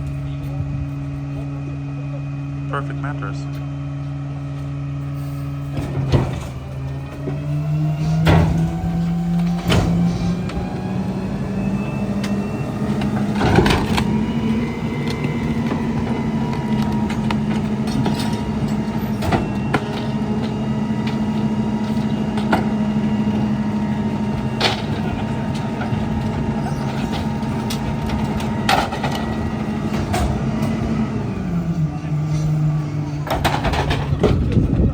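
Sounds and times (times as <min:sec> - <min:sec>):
diesel engine revving: 0:00.0 - 0:34.9
hydraulic whine: 0:00.0 - 0:34.9
trash cracking and snapping: 0:05.8 - 0:30.9.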